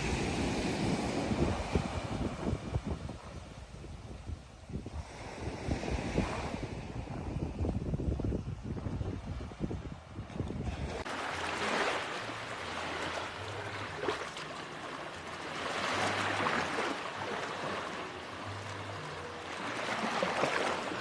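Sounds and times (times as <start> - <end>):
ocean waves breaking on beach: 0.0 - 21.0.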